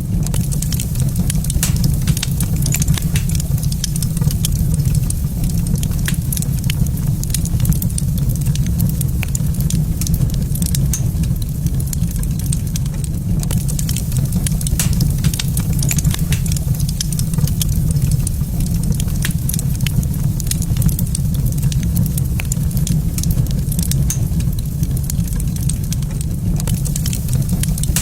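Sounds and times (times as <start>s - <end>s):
low rumble: 0.0s - 28.0s
wood fire crackling: 0.0s - 28.0s
sharp pops: 1.5s - 4.6s, 14.7s - 17.2s.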